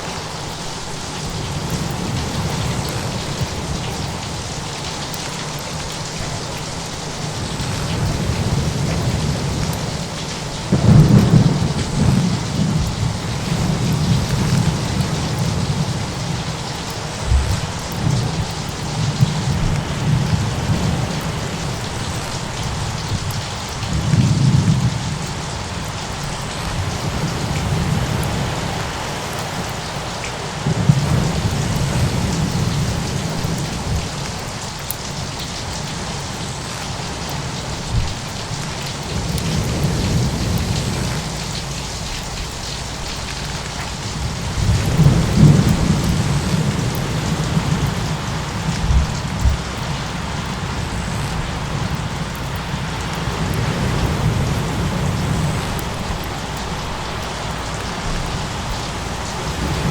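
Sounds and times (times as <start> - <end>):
heavy rain: 0.0 - 59.9
thunder rolling: 7.3 - 25.4, 39.1 - 59.9.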